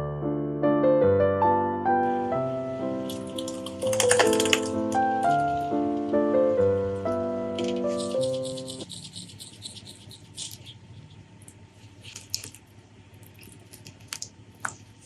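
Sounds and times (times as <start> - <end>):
piano-like intro music: 0.0 - 8.8
food clicks and squishes while eating: 2.8 - 5.4, 7.6 - 15.0.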